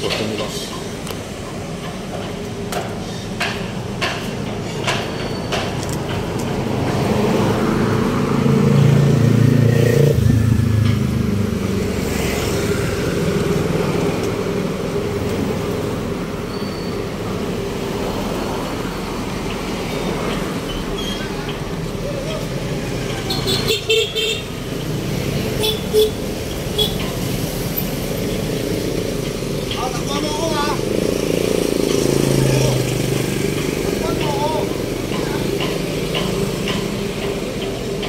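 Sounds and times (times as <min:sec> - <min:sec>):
road traffic hum: 0:00.0 - 0:38.0
vehicle engine passing close: 0:06.6 - 0:16.4, 0:24.5 - 0:38.0.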